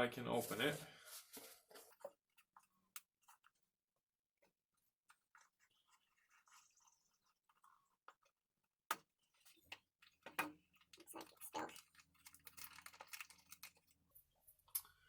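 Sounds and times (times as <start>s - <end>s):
rustling and scraping of container: 0.2s - 3.6s, 4.8s - 8.4s, 9.2s - 14.0s.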